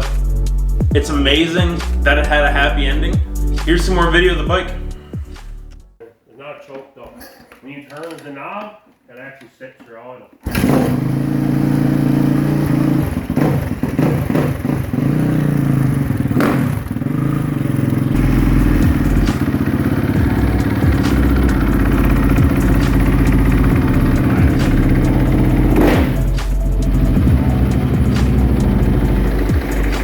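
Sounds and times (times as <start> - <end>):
dirt bike engine revving and idling: 10.5 - 30.0.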